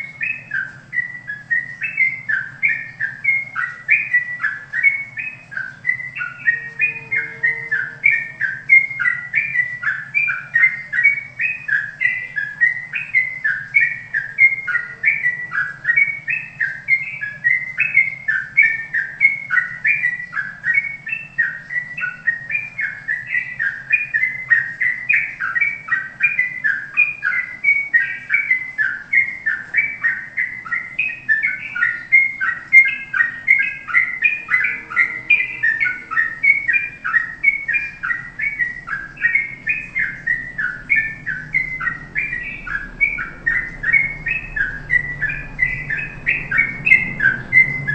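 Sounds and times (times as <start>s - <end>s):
faint low hum: 0.0s - 47.9s
songbird chirping: 0.0s - 47.9s.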